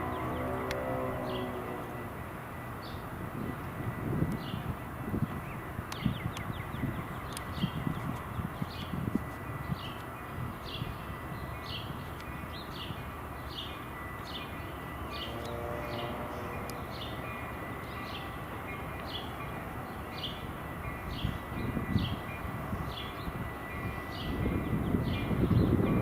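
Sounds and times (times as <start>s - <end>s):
low outdoor rumble: 0.0s - 17.9s.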